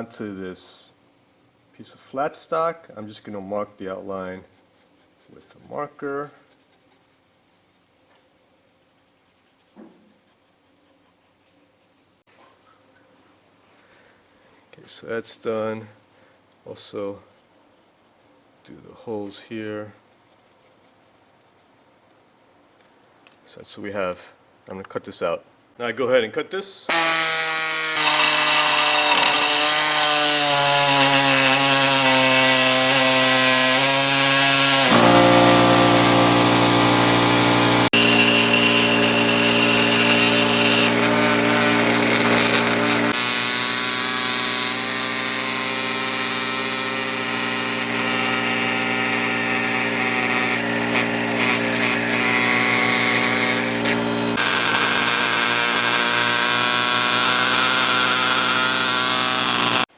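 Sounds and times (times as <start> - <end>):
power tool cutting metal: 26.9 - 59.9.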